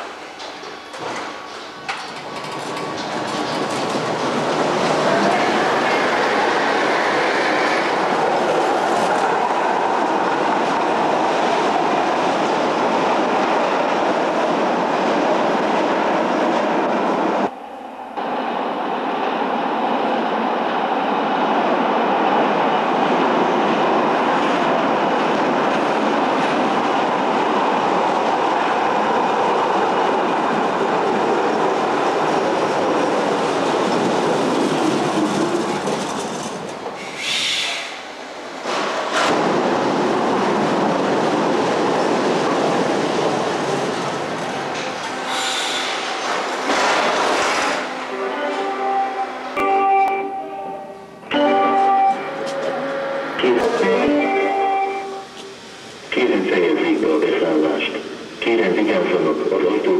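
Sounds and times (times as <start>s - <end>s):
wheels rumbling on rails: 0.4s - 16.8s, 23.0s - 37.3s, 38.5s - 48.8s.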